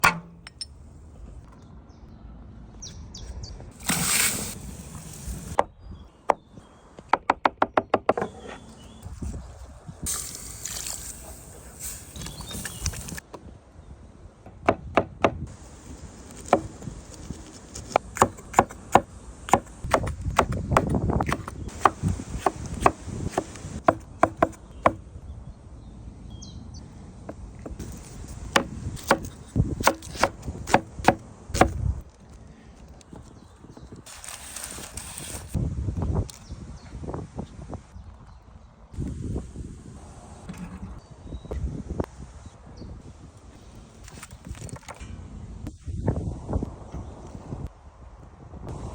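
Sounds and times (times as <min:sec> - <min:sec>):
short hiss bursts: 0:03.8 - 0:05.6, 0:10.1 - 0:13.2.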